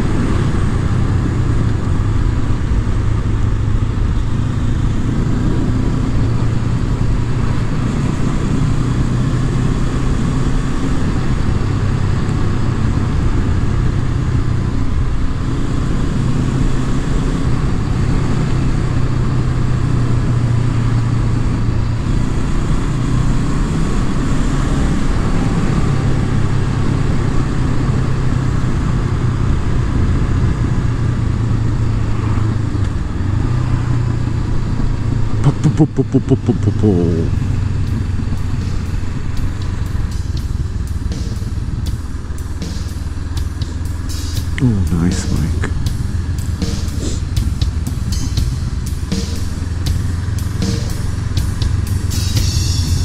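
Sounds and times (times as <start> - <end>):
motorcycle engine running: 36.6 - 53.0.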